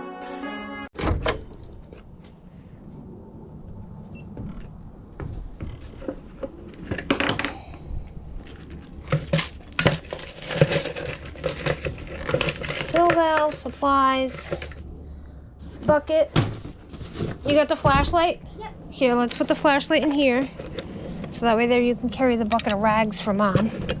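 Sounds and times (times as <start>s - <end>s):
brass intro music: 0.0s - 0.9s
tools and supplies clattering: 5.2s - 14.9s, 15.6s - 18.3s
thump: 16.3s - 18.2s.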